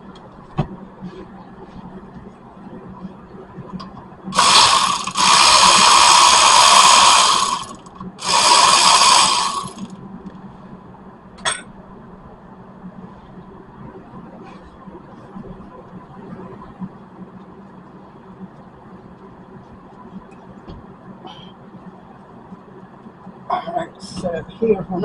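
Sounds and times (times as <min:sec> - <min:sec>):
impact wrench whirring: 0:04.4 - 0:09.9.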